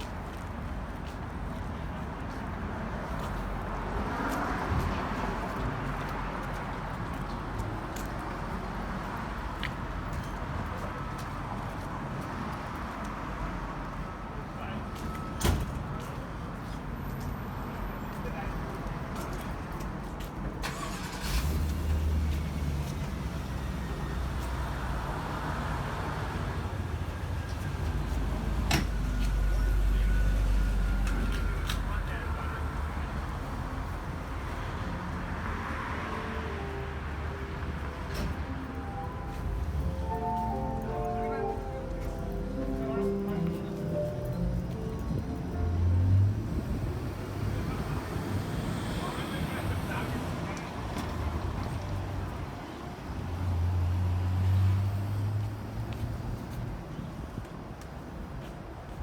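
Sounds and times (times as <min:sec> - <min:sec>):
passing traffic: 0:00.0 - 0:59.0
wind noise on microphone: 0:44.9 - 0:48.5.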